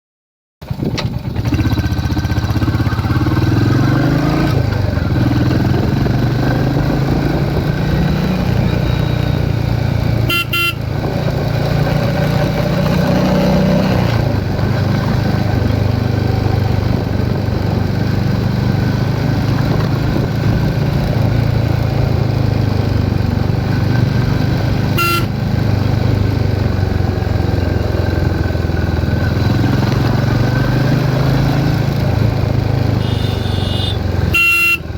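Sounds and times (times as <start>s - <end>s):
motorcycle engine revving: 0.6s - 34.9s
horn toots: 10.1s - 11.1s, 24.7s - 25.4s, 32.9s - 34.9s.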